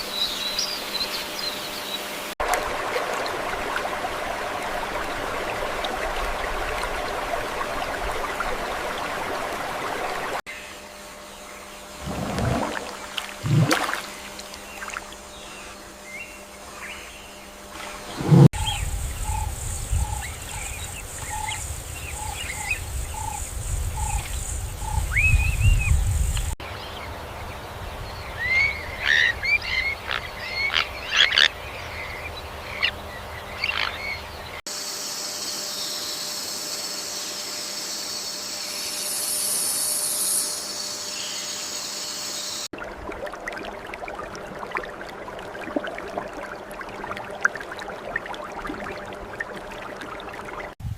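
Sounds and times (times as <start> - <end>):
insect-like drone: 34.7 - 50.7.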